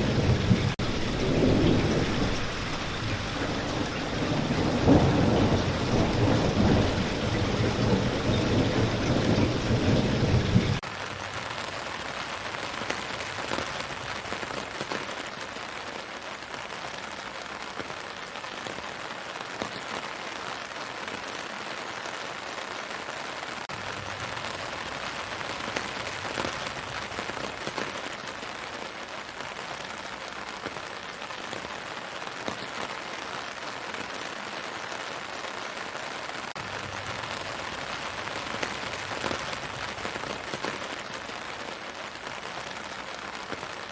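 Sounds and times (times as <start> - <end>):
thunder rumble: 0.0 - 15.0, 36.6 - 41.2
rain on leaves: 0.0 - 43.9.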